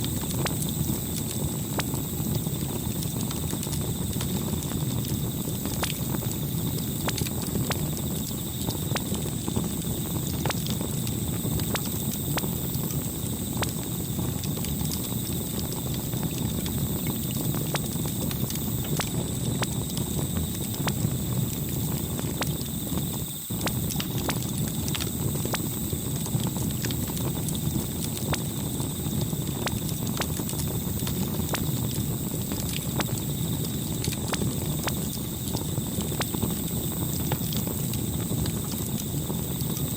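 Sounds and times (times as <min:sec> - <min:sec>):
burning wood crackling and popping: 0:00.0 - 0:39.9
low rush of flame: 0:00.0 - 0:39.9.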